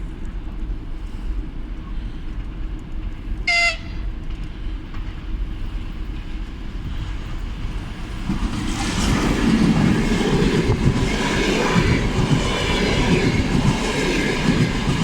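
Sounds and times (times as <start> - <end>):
diesel locomotive engine rumble: 0.0 - 15.0
high-pitched horn toot: 3.5 - 4.0.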